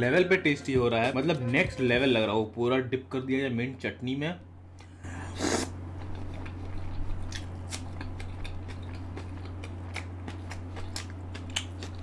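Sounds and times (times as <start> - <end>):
steady low hum: 0.0 - 12.0
crisp chewing crunches: 6.0 - 12.0.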